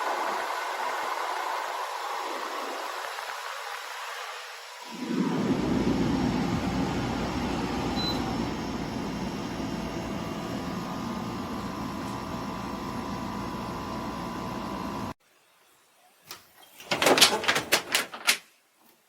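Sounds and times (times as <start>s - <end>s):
portable cooler whirring: 0.0s - 15.2s.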